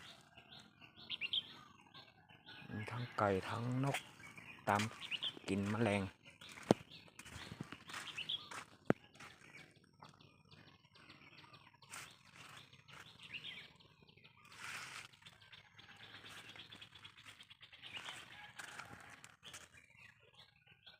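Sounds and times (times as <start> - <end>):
faint birds chirping: 0.0 - 20.9.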